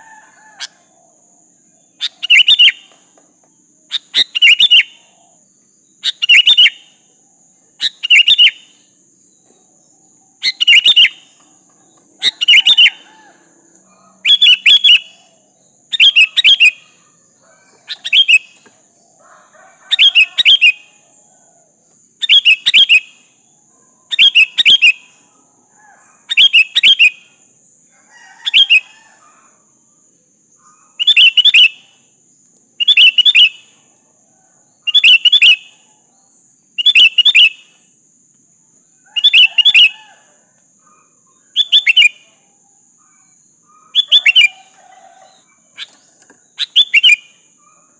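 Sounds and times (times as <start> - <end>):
bird singing chirpy phrases: 1.6 - 3.0, 3.6 - 7.1, 7.7 - 13.1, 13.9 - 19.2, 30.6 - 32.0, 40.8 - 42.4, 43.0 - 47.9.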